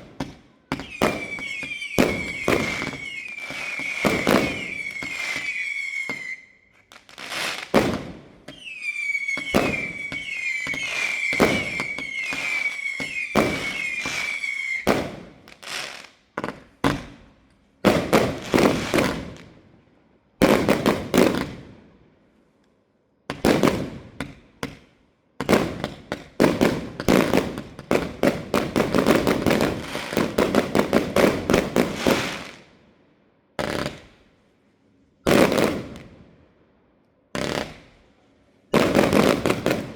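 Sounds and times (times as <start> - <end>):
firework bangs: 0.0 - 6.4, 7.0 - 17.2, 17.8 - 19.5, 25.4 - 32.6, 35.3 - 36.1, 38.7 - 39.9
firework whistles: 0.7 - 15.1
firework crackling: 0.8 - 16.1, 18.2 - 19.5, 27.3 - 32.6.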